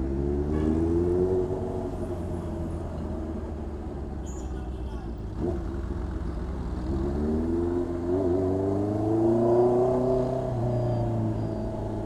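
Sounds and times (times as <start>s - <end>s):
motorcycle engine revving: 6.8s - 12.0s.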